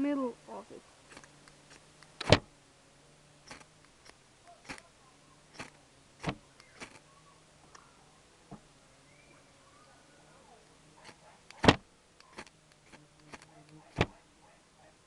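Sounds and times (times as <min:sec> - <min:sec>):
fire steel scraping: 0:05.5 - 0:07.0, 0:12.2 - 0:13.5.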